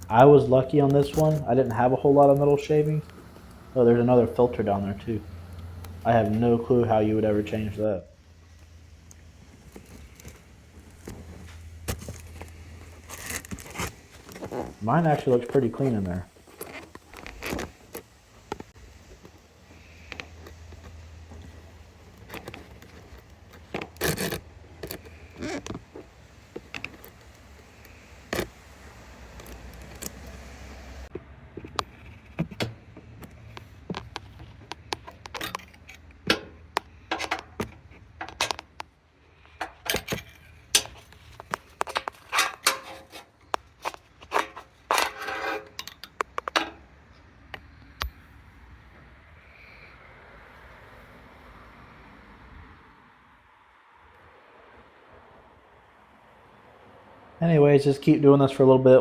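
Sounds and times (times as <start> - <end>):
magnet clicking and scraping on metal: 31.7 - 46.8.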